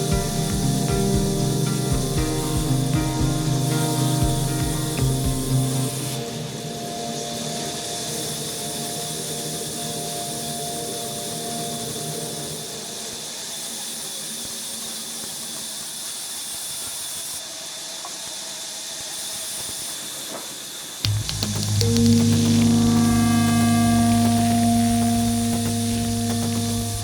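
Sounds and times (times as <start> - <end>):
low hum: 21.1 - 27.0.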